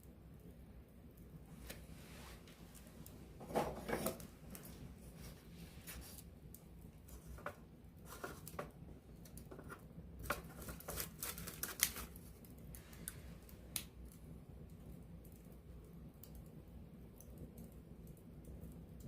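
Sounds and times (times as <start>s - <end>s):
campfire crackling and popping: 5.8s - 19.0s.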